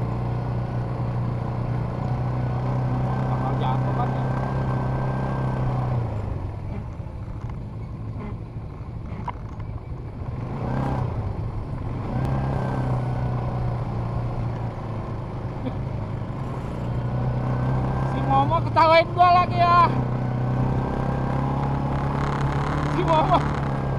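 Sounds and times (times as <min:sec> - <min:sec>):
atv engine running: 0:00.0 - 0:23.9.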